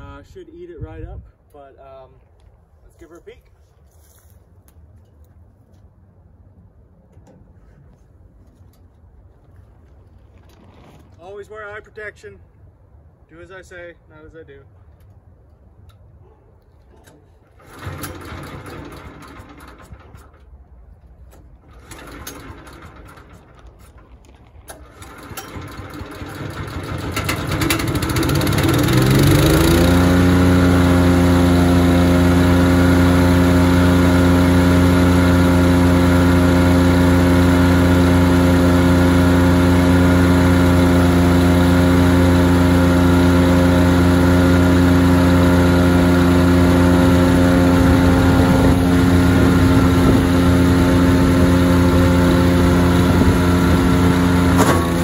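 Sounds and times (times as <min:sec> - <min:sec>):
wood chipper engine starting up: 0:17.4 - 0:20.6, 0:21.4 - 0:55.0.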